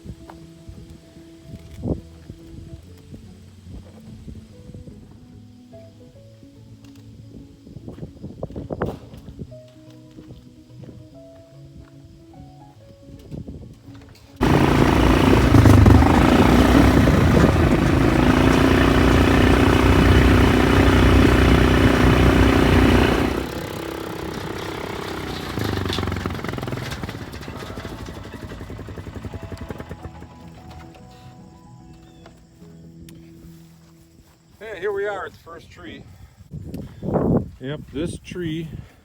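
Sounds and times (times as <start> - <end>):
small vehicle engine running: 14.4 - 31.3.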